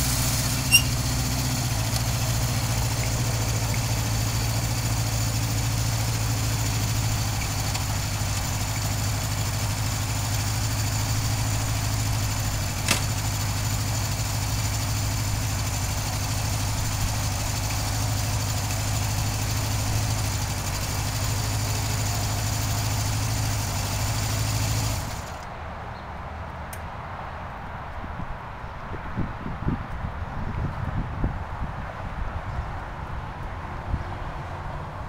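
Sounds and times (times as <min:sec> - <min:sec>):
motorcycle engine running: 0:00.0 - 0:25.4
sharp click: 0:12.8 - 0:13.1.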